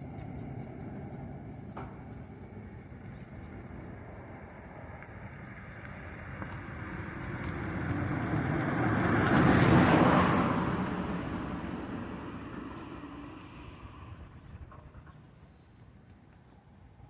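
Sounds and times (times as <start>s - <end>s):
car driving past: 4.4s - 14.5s.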